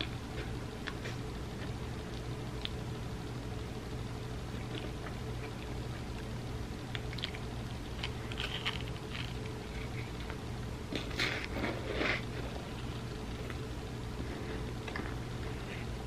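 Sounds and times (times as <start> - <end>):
steady low hum: 0.0 - 16.0
crunchy chip chewing: 6.9 - 13.6.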